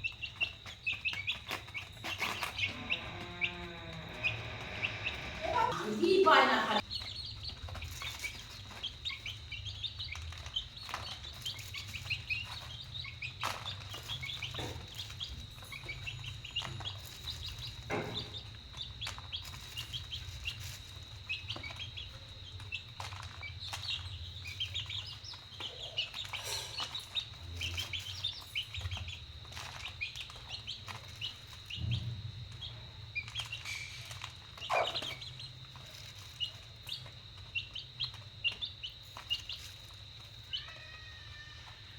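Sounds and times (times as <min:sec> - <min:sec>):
chicks peeping: 0:00.0 - 0:41.9.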